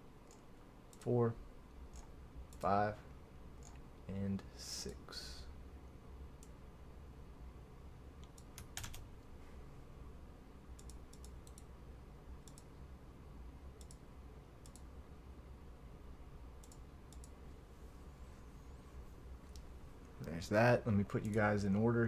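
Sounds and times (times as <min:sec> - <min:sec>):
low steady hum: 0:00.0 - 0:22.0
light clicks: 0:10.8 - 0:11.7, 0:12.4 - 0:12.7, 0:13.8 - 0:14.0, 0:14.6 - 0:14.9, 0:16.6 - 0:17.4.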